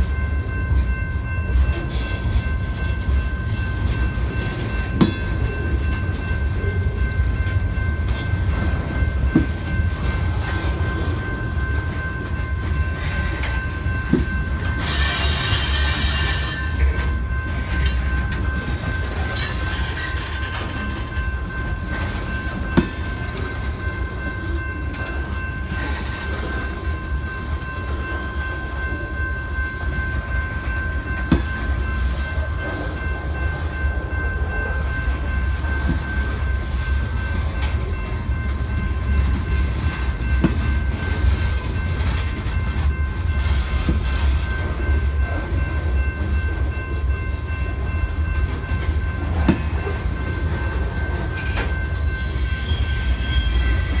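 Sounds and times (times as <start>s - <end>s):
freight train cars rumbling: 0.0s - 54.0s
high-pitched ringing tone: 10.8s - 43.5s, 44.4s - 54.0s.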